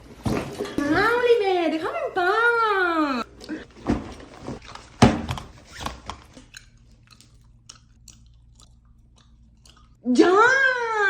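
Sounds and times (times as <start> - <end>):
person chewing crisp food: 4.6 - 5.0, 5.9 - 10.0.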